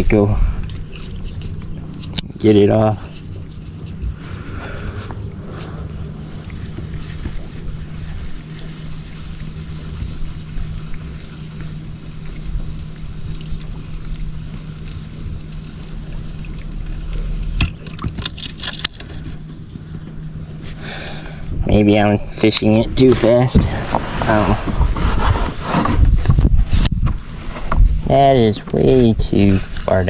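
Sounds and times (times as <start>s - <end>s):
electric trolling motor humming: 0.0s - 26.6s.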